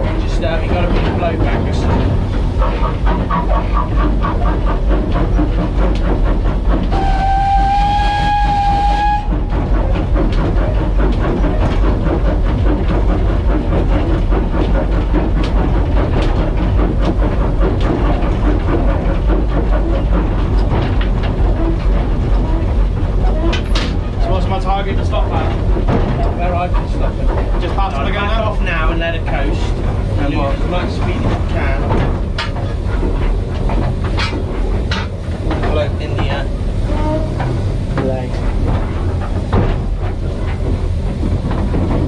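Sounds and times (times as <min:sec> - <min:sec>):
steam locomotive running rumble: 0:00.0 - 0:42.0
wheels clicking over rail joints: 0:00.0 - 0:42.0
steam whistle: 0:06.9 - 0:09.4.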